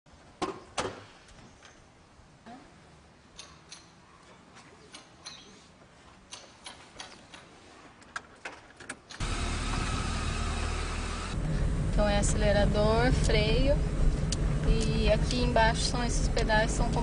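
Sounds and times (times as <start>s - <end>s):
car engine running: 9.2s - 17.0s.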